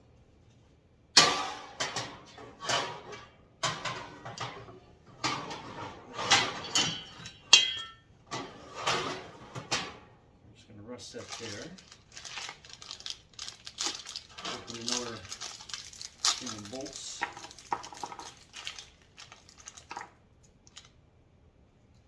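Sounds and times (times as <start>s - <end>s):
metal shelf panel clanking: 1.2s - 10.0s.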